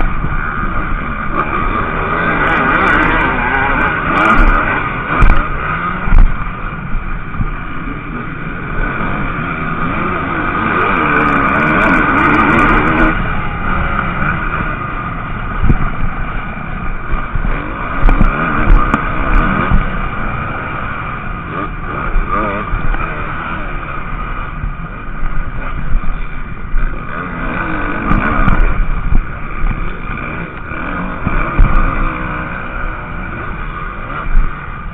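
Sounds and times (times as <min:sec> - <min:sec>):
motocross bike engines revving: 0:00.0 - 0:34.9
sharp low thumps: 0:03.0 - 0:07.8, 0:11.4 - 0:20.7, 0:27.9 - 0:32.1.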